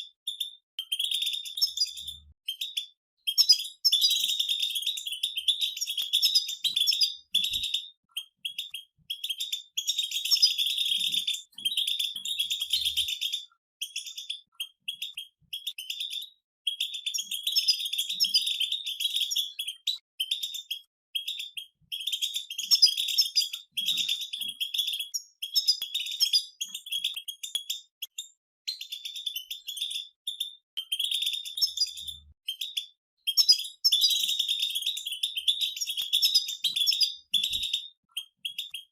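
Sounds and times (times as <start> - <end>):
finches twittering: 0.3 - 28.2, 28.8 - 38.9.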